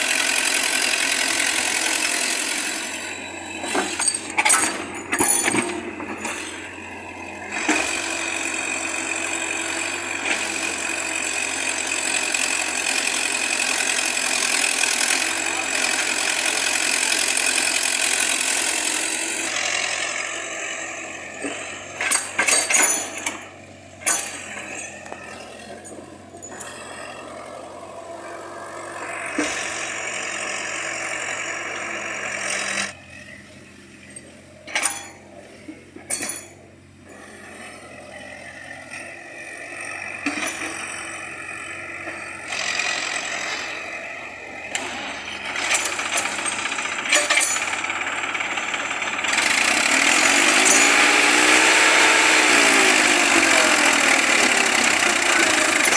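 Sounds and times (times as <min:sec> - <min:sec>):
heavy machinery engines running: 0:00.0 - 0:55.9
sharp metallic clanks: 0:03.6 - 0:06.6, 0:21.5 - 0:26.8, 0:34.1 - 0:35.3, 0:36.0 - 0:36.6.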